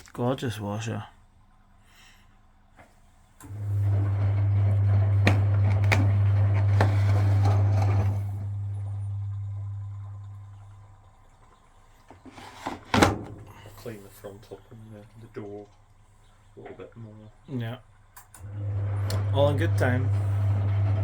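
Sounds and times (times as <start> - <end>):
washing machine motor hum: 3.1 - 21.0
wet laundry churning and clunking: 3.4 - 17.1.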